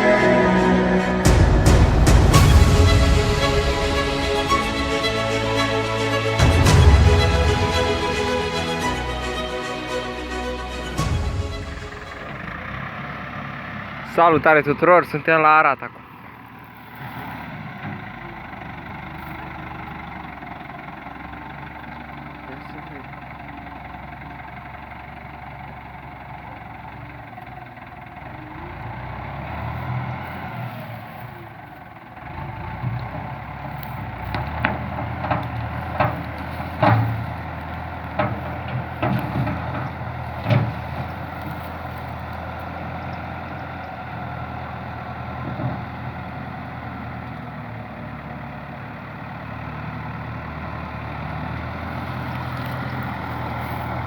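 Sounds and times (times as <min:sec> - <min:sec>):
tractor diesel engine running: 0:00.0 - 0:54.0
sharp knocks and rattles: 0:32.5 - 0:43.8.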